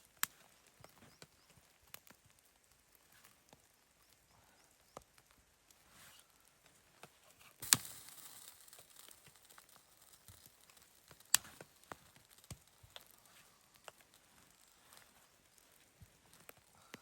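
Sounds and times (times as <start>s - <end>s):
sharp snaps: 7.6s - 17.0s.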